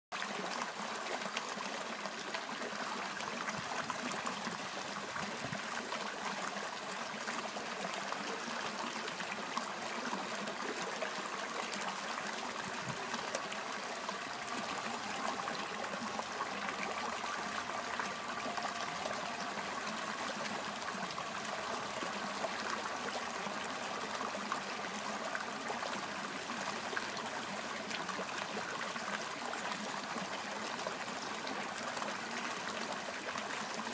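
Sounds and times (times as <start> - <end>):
running water flowing: 7.9 - 33.8.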